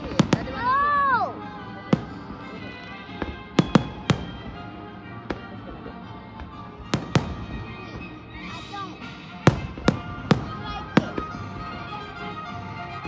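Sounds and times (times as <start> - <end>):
fireworks bangs: 0.0 - 0.9, 1.9 - 8.4, 9.4 - 12.2
music: 0.0 - 13.0.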